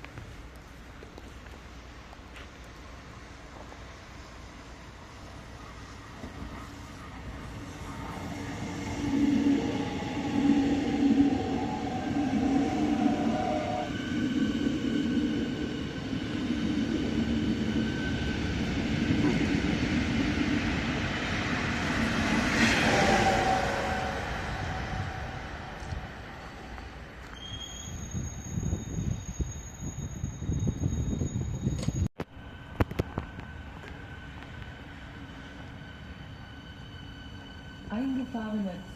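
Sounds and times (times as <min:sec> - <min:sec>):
train wheels rumbling: 0:00.0 - 0:38.9
electric train motors whining: 0:23.2 - 0:38.6.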